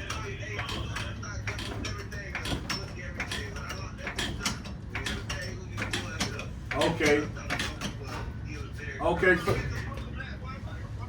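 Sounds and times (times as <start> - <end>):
mechanical clicks and rattles: 0.0 - 8.2.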